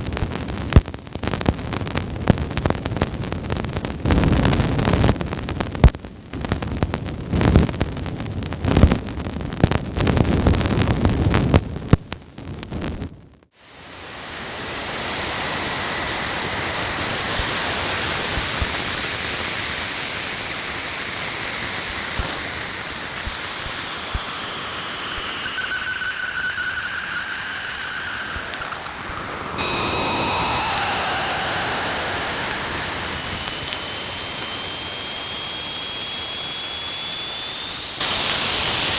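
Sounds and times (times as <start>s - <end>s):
crackly bursting static: 0.0s - 38.9s
steady hiss: 13.6s - 38.9s
faint whistling tones: 23.6s - 38.0s.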